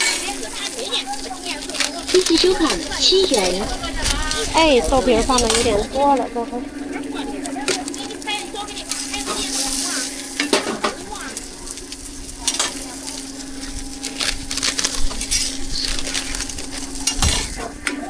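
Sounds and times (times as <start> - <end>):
steady low hum: 1.2 - 9.2
batter sizzling on griddle: 7.6 - 17.2.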